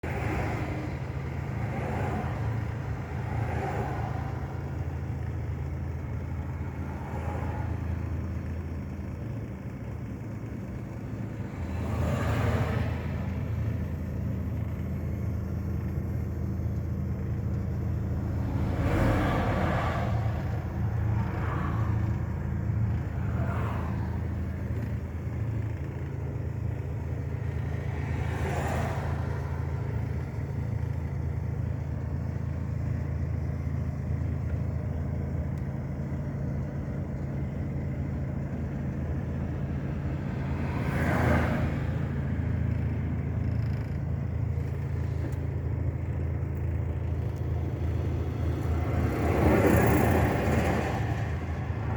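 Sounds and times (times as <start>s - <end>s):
vehicles swishing past: 0.0s - 5.2s, 11.3s - 13.7s, 18.0s - 26.0s, 27.3s - 30.5s, 38.7s - 45.5s, 46.1s - 51.9s
car engine drone and road noise: 0.0s - 51.9s.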